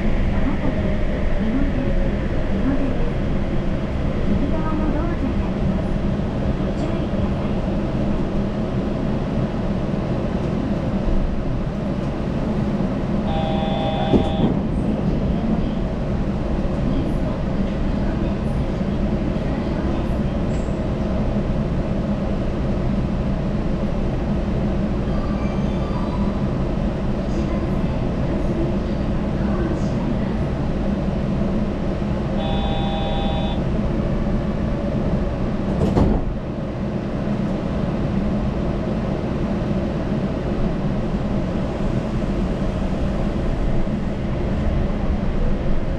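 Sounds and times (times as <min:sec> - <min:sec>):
train tyres rumbling: 0:00.0 - 0:45.9.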